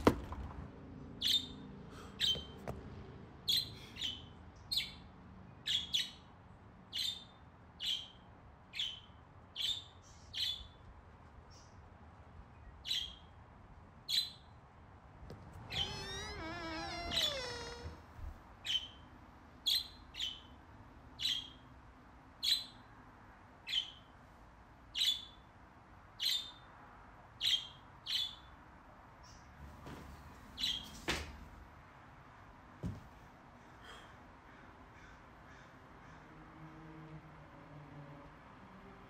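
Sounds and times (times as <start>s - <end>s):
wavering creak: 15.6s - 18.3s.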